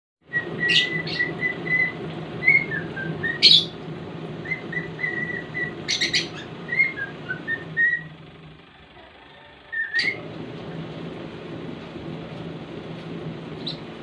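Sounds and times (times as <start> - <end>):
cockatiel whistling a tune: 0.3 - 3.8, 4.4 - 8.1, 9.7 - 10.2.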